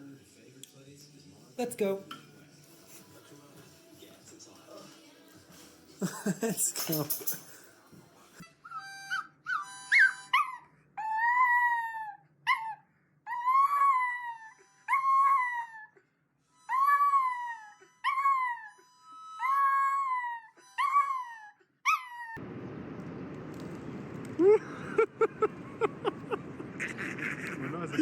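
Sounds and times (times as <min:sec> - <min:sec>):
dog howling: 0:10.4 - 0:15.9, 0:16.7 - 0:22.4.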